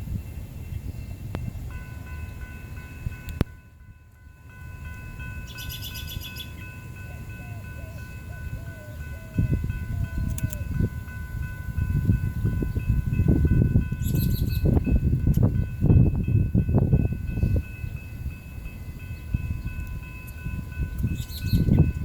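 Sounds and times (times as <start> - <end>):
wind rumbling on microphone: 0.0 - 3.8, 7.2 - 22.0
birds chirping: 5.2 - 9.3, 19.0 - 21.9.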